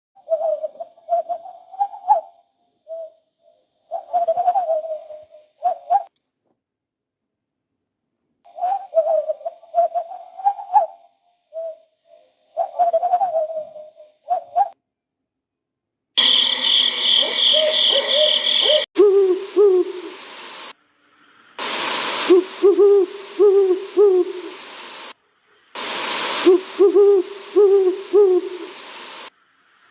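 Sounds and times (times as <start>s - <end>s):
owl hooting: 0.2s - 6.1s, 8.5s - 14.8s, 16.2s - 20.7s, 21.6s - 25.2s, 25.8s - 29.3s
steady high buzzing: 16.2s - 29.3s.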